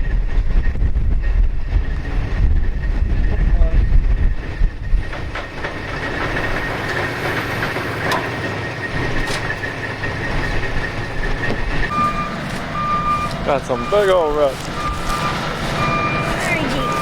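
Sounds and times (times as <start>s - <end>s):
heavy truck engine running: 0.0s - 17.0s
high-pitched whine: 0.0s - 17.0s
reversing beep: 8.0s - 17.0s.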